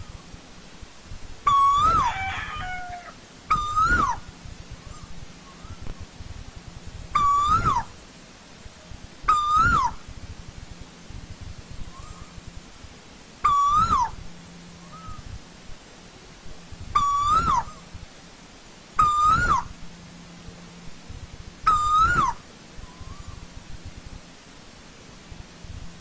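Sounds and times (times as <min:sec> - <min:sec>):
faint koel calls: 0:01.4 - 0:06.2, 0:07.1 - 0:10.2, 0:11.7 - 0:15.6, 0:16.2 - 0:21.0, 0:21.6 - 0:25.0
koel hooting: 0:07.1 - 0:07.9, 0:09.3 - 0:10.0, 0:13.4 - 0:14.2, 0:17.0 - 0:17.9, 0:19.0 - 0:19.8, 0:21.6 - 0:23.4.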